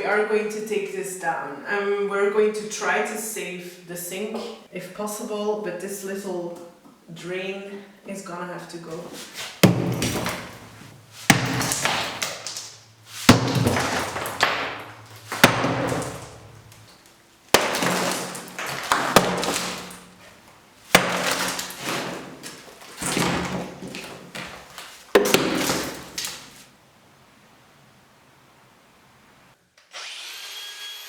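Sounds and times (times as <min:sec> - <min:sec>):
concrete pieces clattering: 0:09.2 - 0:26.6
hammer blows on concrete: 0:09.6 - 0:16.8.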